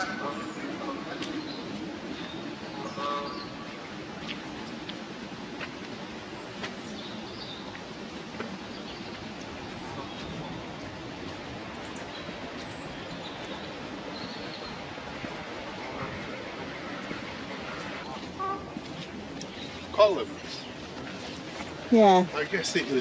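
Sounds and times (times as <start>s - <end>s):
birds chirping faintly: 0.0s - 5.0s, 5.9s - 23.0s
wind and rain hiss: 0.0s - 23.0s.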